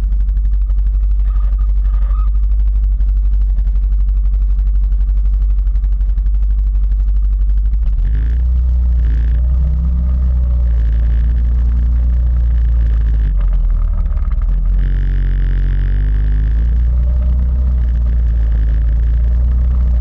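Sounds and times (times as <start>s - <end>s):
quad bike engine revving: 8.0s - 20.0s.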